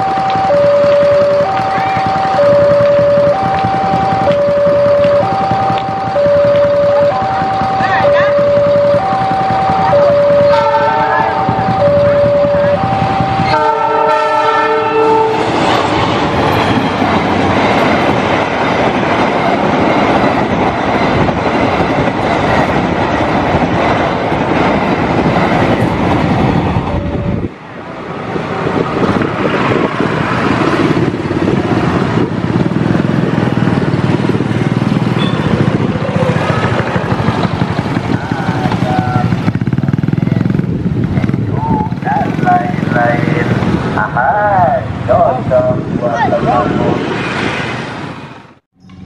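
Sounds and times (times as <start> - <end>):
train wheels rumbling on rails: 0.0 - 49.0
train horn blasts: 9.8 - 15.5.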